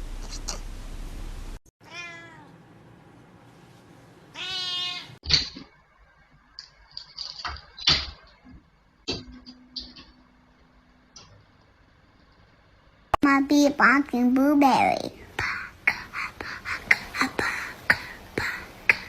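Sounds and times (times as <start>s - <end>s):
cat meowing: 1.8s - 2.5s, 4.3s - 5.2s.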